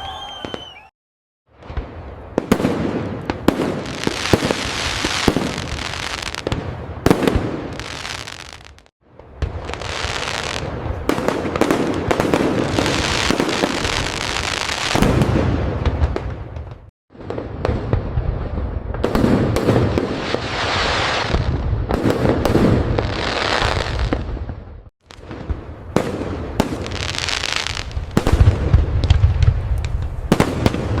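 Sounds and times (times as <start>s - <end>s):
fireworks crackling and banging: 1.5s - 31.0s.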